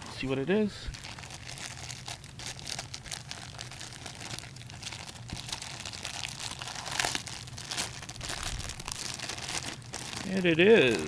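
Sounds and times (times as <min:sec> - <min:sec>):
wrapper crinkling as torn open: 0:00.9 - 0:11.0.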